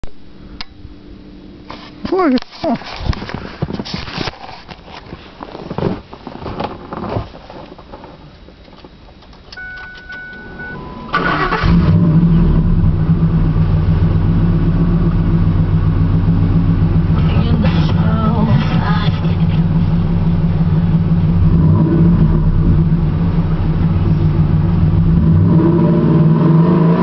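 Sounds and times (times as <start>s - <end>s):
short electronic tone: 9.6s - 11.8s
engine starting and idling: 9.6s - 14.1s.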